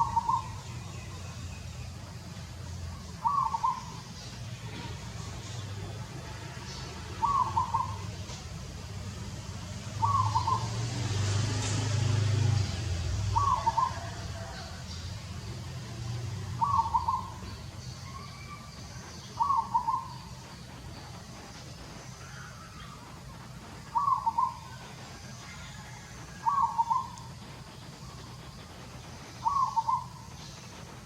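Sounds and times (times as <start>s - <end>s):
low steady rumble: 0.0s - 31.0s
bird hooting: 3.2s - 4.0s, 7.2s - 8.1s, 10.0s - 10.7s, 13.4s - 14.2s, 16.6s - 17.4s, 23.9s - 24.7s, 26.4s - 27.2s, 29.4s - 30.3s.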